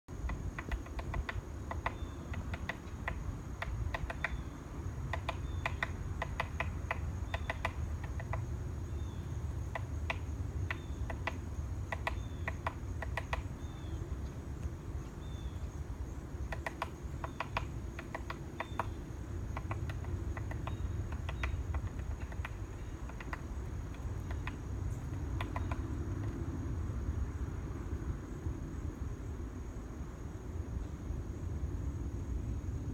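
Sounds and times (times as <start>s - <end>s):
woodpecker pecking plastic tube: 0.2s - 4.4s, 5.1s - 8.4s, 9.7s - 13.5s, 16.5s - 25.8s.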